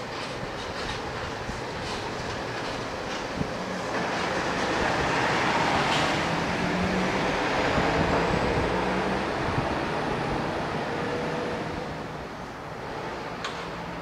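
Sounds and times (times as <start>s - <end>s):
distant electric train rumbling: 0.0s - 14.0s.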